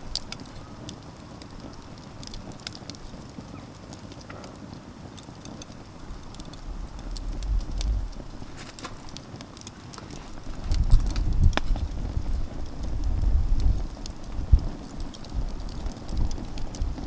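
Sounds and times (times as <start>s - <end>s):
campfire crackling and popping: 0.0s - 17.0s
low rumble: 5.9s - 9.2s.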